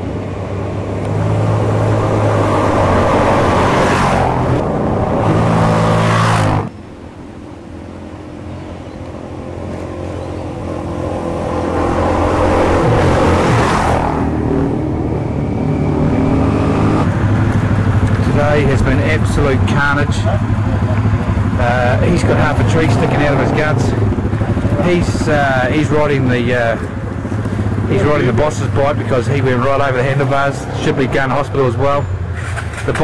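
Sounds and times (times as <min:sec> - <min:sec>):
dirt bike engine running: 0:09.1 - 0:29.1.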